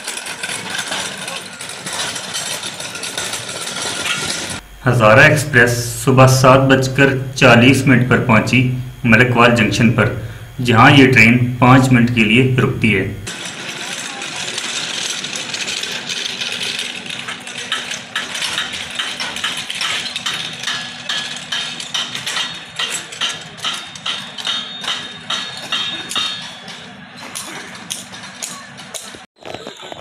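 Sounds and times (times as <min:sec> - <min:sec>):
train clicks and knocks: 0:00.0 - 0:04.6, 0:13.3 - 0:29.2
steady hiss and low hum: 0:04.6 - 0:14.6.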